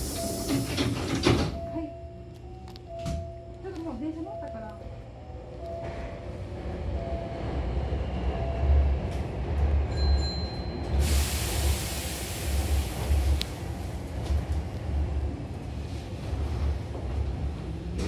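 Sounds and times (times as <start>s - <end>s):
train rumble inside carriage: 0.0s - 18.0s
steady hiss: 11.0s - 13.6s.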